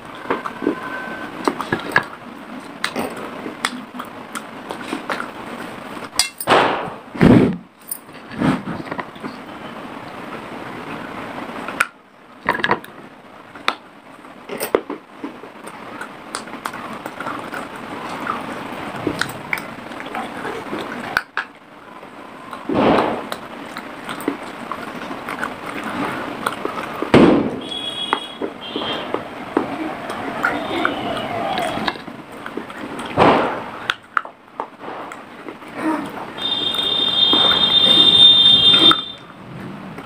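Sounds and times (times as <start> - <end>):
crunching and chewing clay: 22.3 - 28.3.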